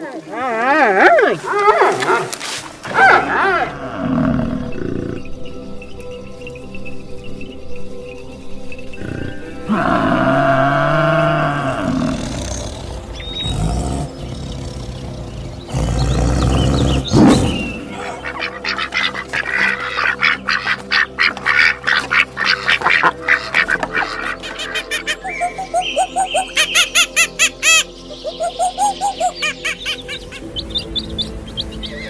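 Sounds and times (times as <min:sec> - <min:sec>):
soft background music: 0:00.0 - 0:32.0
drawn-out animal call: 0:17.8 - 0:32.0
duck quacks: 0:18.0 - 0:25.2.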